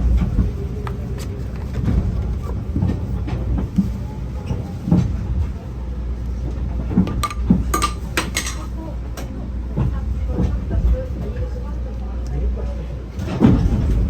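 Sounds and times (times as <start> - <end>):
train carriage rumble: 0.0 - 14.0
sharp clicks and clunks: 7.1 - 8.7.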